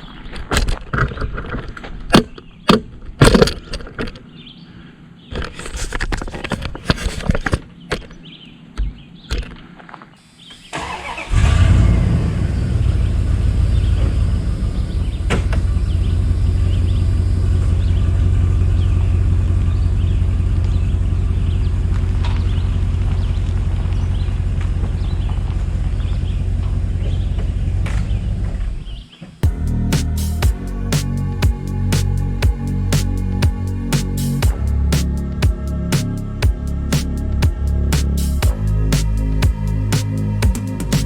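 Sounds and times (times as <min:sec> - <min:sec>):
engine starting and running: 0:10.6 - 0:28.0.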